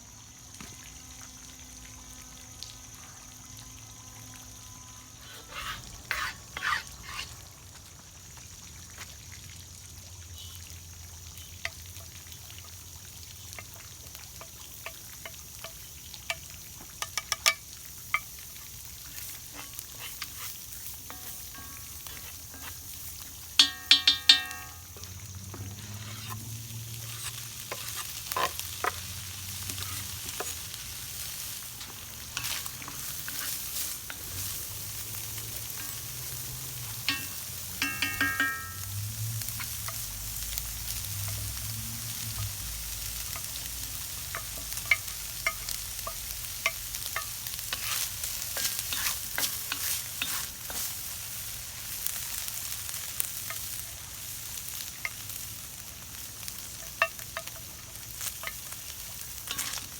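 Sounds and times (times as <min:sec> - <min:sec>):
stir-fry sizzling in a wok: 0:00.0 - 0:59.9
utensil scraping against iron wok: 0:05.2 - 0:07.5, 0:14.4 - 0:59.9.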